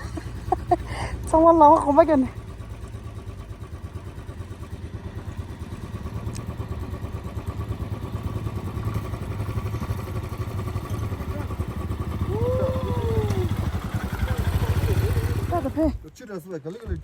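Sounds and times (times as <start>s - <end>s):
motorcycle engine rumble: 0.0s - 16.2s.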